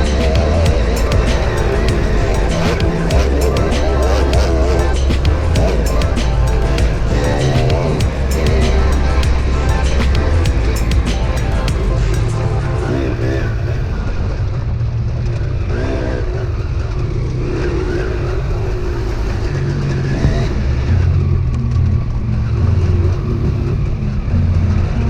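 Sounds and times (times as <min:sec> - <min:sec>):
dirt bike engine revving: 0:00.0 - 0:13.4.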